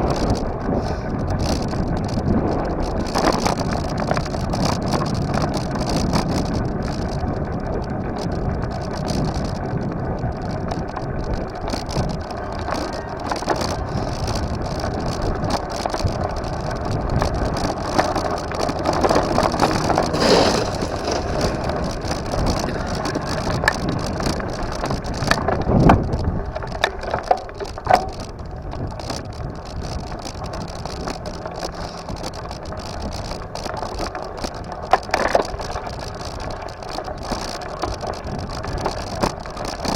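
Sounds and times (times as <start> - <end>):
bike riding rumble: 0.0 - 39.9
wind on microphone: 0.0 - 39.9
knocks and rattles: 13.3 - 28.4.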